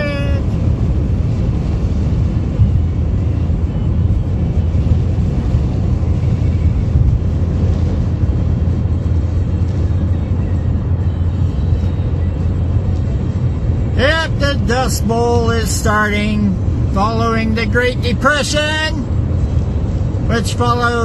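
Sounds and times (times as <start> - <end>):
strong wind buffeting microphone: 0.0 - 14.8.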